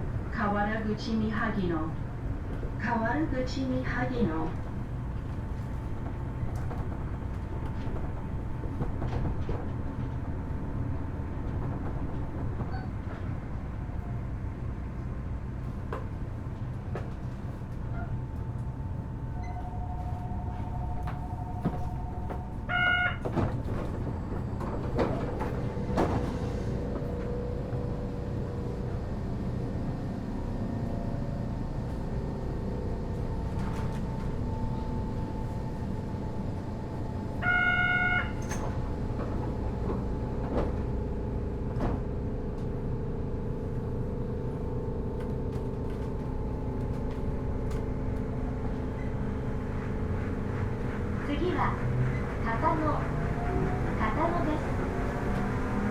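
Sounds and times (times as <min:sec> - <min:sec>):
train equipment low hum: 0:00.0 - 0:55.9.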